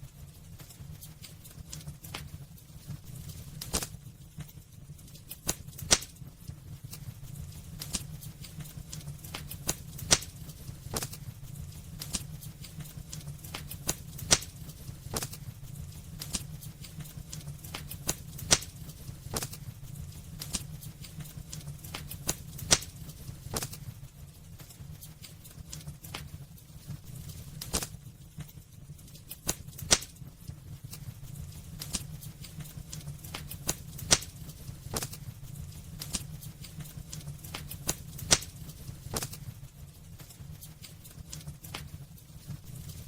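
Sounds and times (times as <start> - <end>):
wood fire crackling: 0.0 - 43.0
loud sharp fire snap: 3.0 - 4.0, 5.2 - 24.0, 27.3 - 28.0, 29.2 - 30.3, 30.9 - 39.6.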